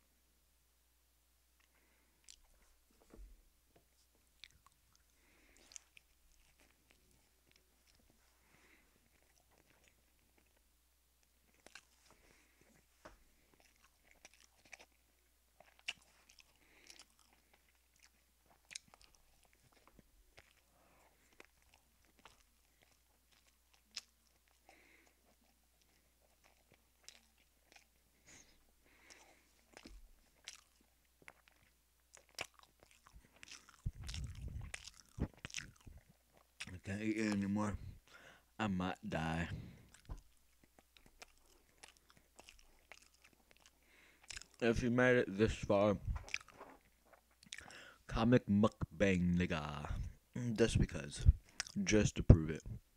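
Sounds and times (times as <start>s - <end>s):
chewing and eating sounds: 1.6s - 3.2s, 3.9s - 52.7s
sharp mouth clicks and smacks: 29.0s - 36.8s, 39.9s - 44.6s, 46.1s - 47.8s, 51.2s - 51.8s.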